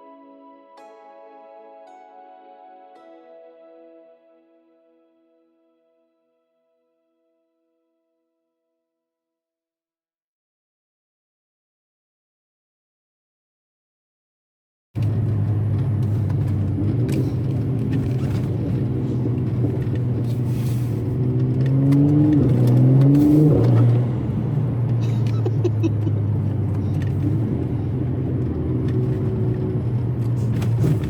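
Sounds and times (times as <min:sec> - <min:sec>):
car engine and exhaust: 0:15.0 - 0:31.0.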